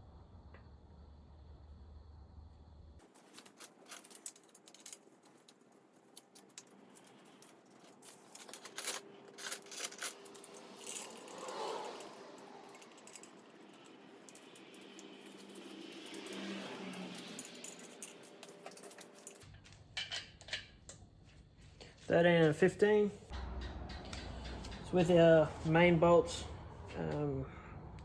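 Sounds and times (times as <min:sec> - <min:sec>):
metal engine parts clicking: 0:03.0 - 0:21.1, 0:23.3 - 0:25.8.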